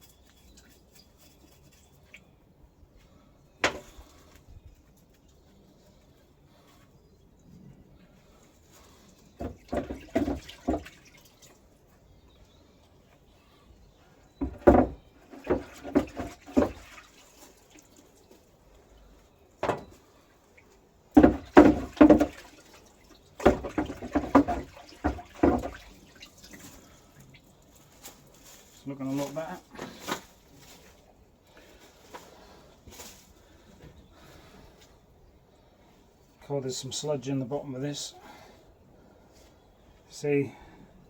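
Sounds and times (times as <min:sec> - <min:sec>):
fuel sloshing in metal tank: 0:08.0 - 0:12.6, 0:13.3 - 0:33.6.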